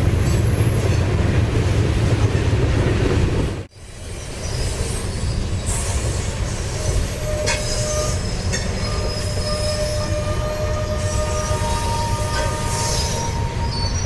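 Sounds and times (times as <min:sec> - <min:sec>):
train wheels rumbling on rail: 0:00.0 - 0:14.0
high wheel squeal: 0:04.0 - 0:14.0.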